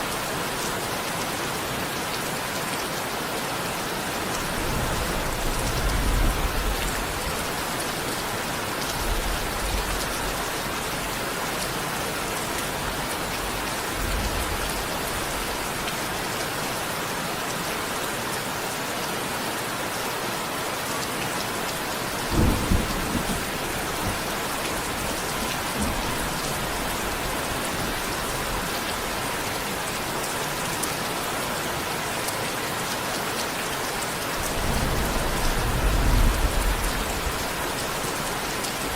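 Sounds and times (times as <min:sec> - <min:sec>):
heavy rain falling: 0:00.0 - 0:38.9
thunder rumbling: 0:04.4 - 0:08.2, 0:22.1 - 0:29.2, 0:34.4 - 0:38.9
thunder clap: 0:22.2 - 0:26.4, 0:34.4 - 0:38.4.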